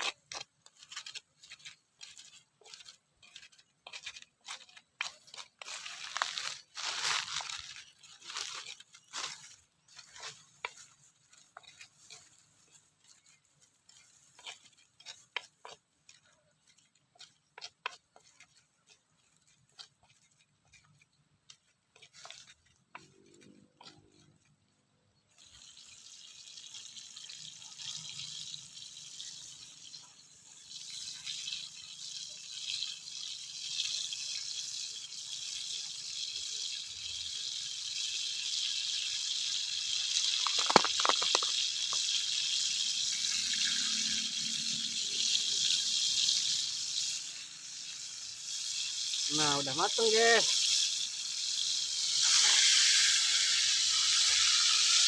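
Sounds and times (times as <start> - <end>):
stone pestle grinding in mortar: 0.0 - 24.7, 38.6 - 47.4
food sizzling in hot oil: 0.0 - 55.0.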